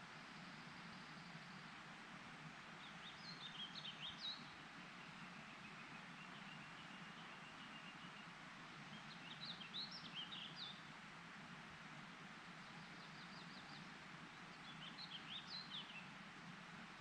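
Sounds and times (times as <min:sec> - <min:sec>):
faint outdoor hiss: 0:00.0 - 0:17.0
songbird chirping: 0:02.8 - 0:10.9, 0:12.6 - 0:16.2.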